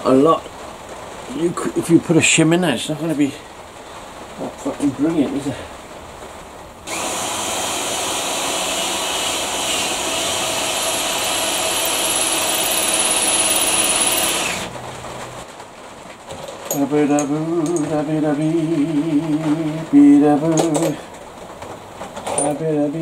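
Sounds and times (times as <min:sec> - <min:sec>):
electric drill drilling metal: 0:06.9 - 0:14.7.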